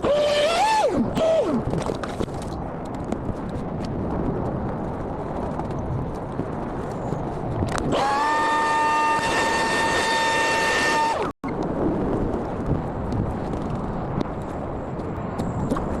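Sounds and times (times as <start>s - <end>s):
small electric motor whining: 0.0s - 1.7s, 7.9s - 11.3s.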